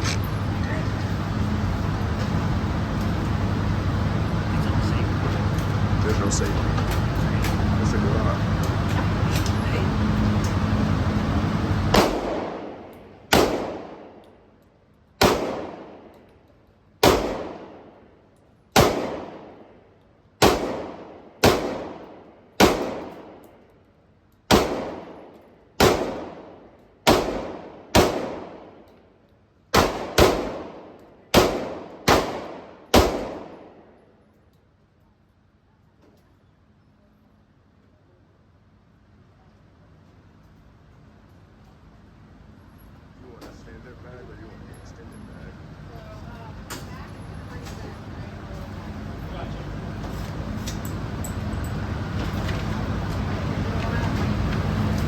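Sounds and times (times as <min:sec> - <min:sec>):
rifle shots echoing indoors: 0:11.9 - 0:14.3, 0:15.2 - 0:16.2, 0:17.0 - 0:18.1, 0:18.7 - 0:19.8, 0:20.4 - 0:23.5, 0:24.5 - 0:28.9, 0:29.7 - 0:34.1.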